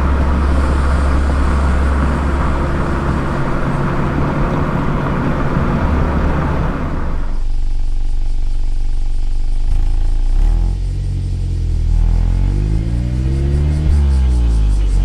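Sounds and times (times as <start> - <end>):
road noise: 0.0 - 7.5, 11.3 - 15.0
car exhaust drone: 0.0 - 15.0.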